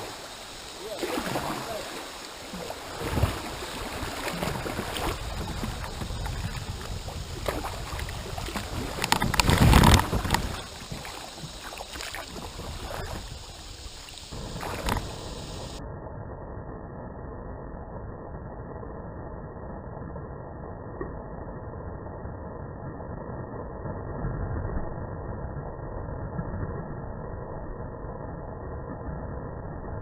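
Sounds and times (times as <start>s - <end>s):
paddle strokes splashing: 0.0s - 15.8s
kayak hull knocking: 7.4s - 13.2s.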